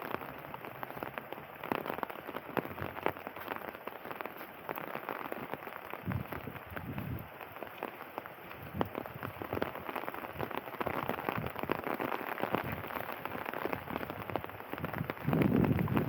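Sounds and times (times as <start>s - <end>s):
rain drops pattering: 0.0s - 16.0s.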